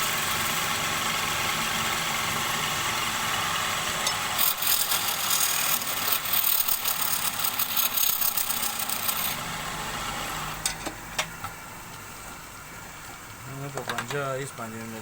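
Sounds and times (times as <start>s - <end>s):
lathe motor humming: 0.0s - 10.6s
turning tool scraping wood: 4.4s - 9.4s.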